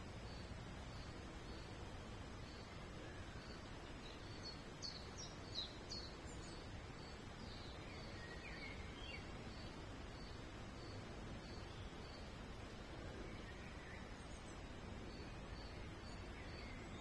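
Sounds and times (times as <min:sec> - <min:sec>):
small songbirds chirping: 0:00.0 - 0:17.0
steady background hiss: 0:00.0 - 0:17.0.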